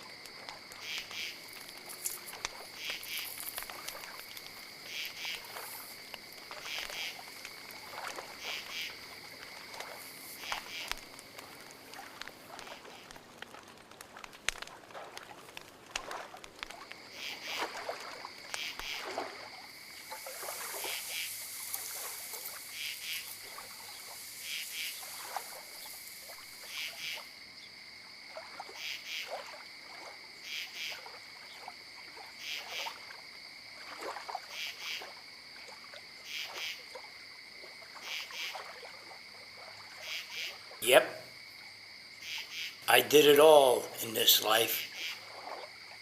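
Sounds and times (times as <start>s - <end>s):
insects chirping: 0.0s - 46.0s
soft hiss: 19.9s - 26.8s.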